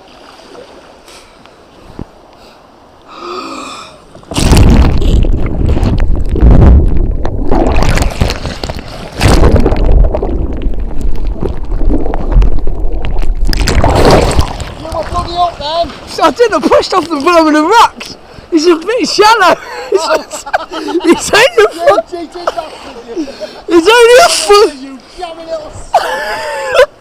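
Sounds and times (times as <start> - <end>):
wind buffeting microphone: 4.1 - 17.0
churning splashing water: 4.2 - 17.8.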